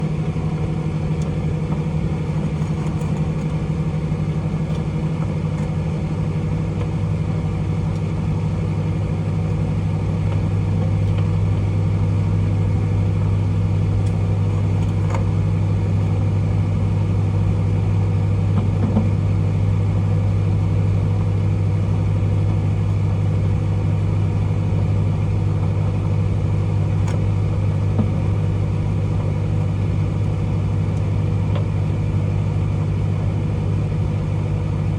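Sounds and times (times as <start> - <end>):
microwave oven humming: 0.0 - 34.9.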